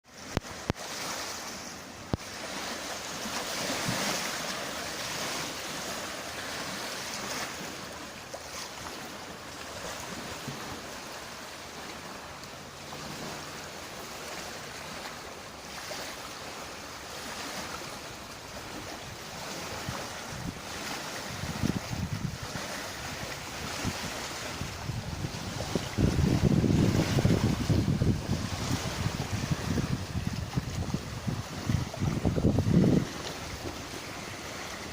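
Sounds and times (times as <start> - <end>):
waves splashing: 0.0 - 34.9
wind blowing over water: 0.0 - 34.9
wind buffeting microphone: 19.4 - 34.9.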